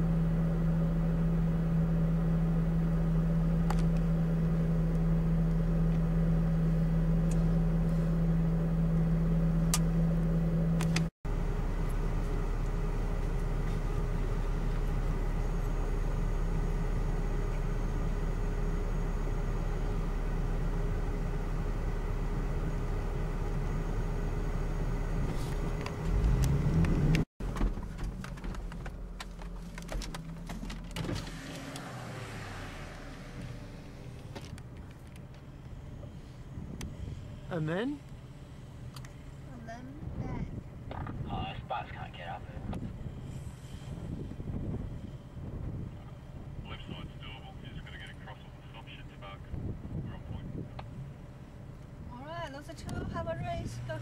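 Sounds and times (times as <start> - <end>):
driving on sand track rumble: 0.0 - 54.0
vehicle engine droning in cabin: 0.0 - 54.0.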